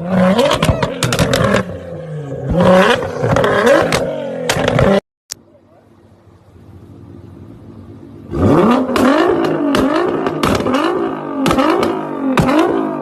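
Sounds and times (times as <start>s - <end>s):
car engine revving: 0.0s - 5.0s, 6.4s - 13.0s
sharp exhaust cracks: 8.3s - 13.0s.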